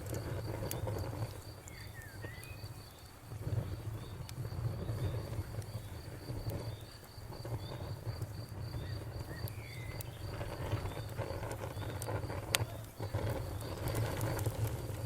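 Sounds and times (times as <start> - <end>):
campfire crackles: 0.0 - 15.0
insect chirping: 0.2 - 14.9
faint bird chirps: 1.6 - 2.8, 8.7 - 12.0.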